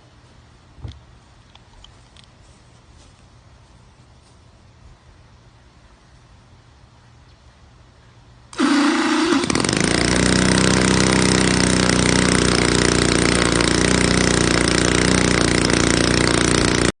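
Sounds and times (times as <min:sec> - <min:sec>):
two-stroke model engine running: 0:08.5 - 0:17.0.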